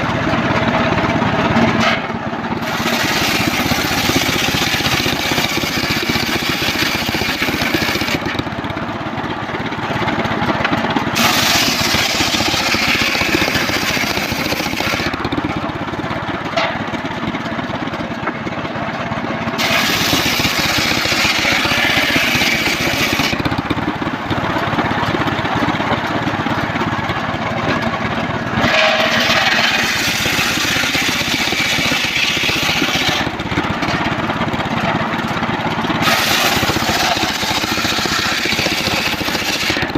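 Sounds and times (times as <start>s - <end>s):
sawmill engine running: 0.0s - 39.9s
saw blade hissing through log: 2.6s - 8.2s, 11.2s - 15.2s, 19.6s - 23.4s, 28.6s - 33.3s, 36.0s - 39.9s.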